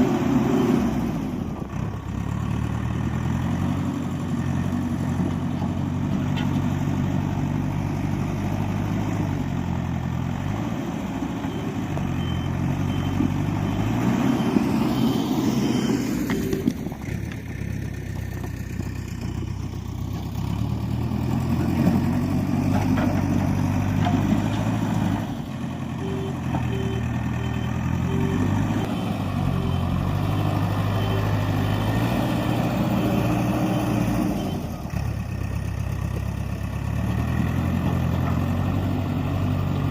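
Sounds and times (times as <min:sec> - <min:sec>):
diesel engine working under load: 0:00.0 - 0:39.9
short evenly spaced beeps: 0:11.4 - 0:16.6.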